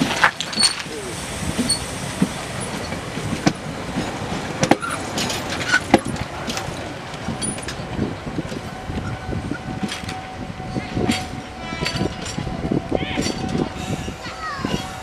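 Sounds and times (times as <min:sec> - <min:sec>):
train wheels rumbling on rails: 0:00.0 - 0:15.0
sharp clack of wheels: 0:01.6 - 0:09.2.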